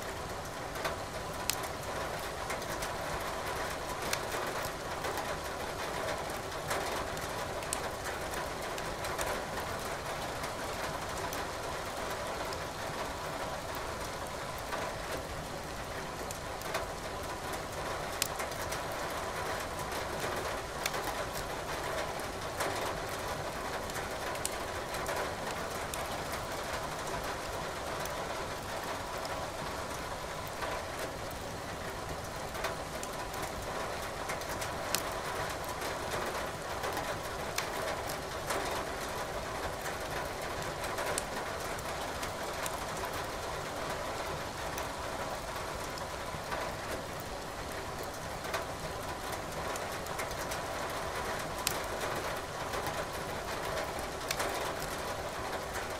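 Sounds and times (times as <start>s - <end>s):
firewood crackling and popping: 34.9s - 35.8s, 53.9s - 54.9s.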